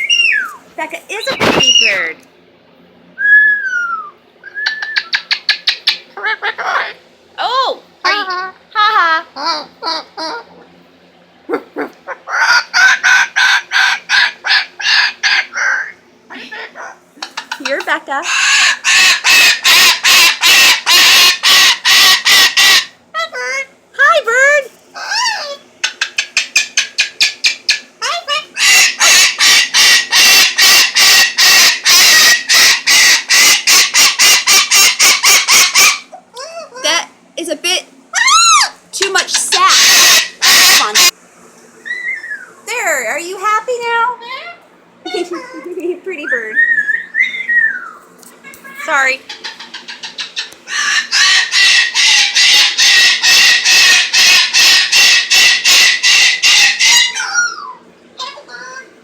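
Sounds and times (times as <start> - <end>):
bird squawking harshly: 1.2 - 2.1, 11.5 - 23.0, 27.0 - 36.1, 38.2 - 41.1, 48.7 - 58.7.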